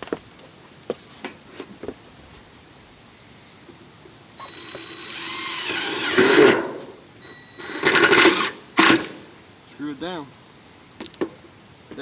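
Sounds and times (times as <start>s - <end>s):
power drill driving screw into metal: 4.4s - 9.2s.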